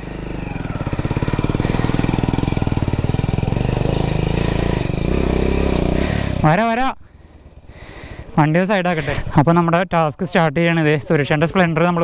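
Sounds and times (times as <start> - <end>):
motorcycle engine at low revs: 0.0 - 9.4.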